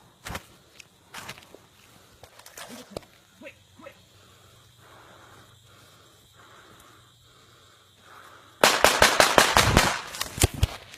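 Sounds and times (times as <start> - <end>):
gunfire bursts: 8.6 - 10.1.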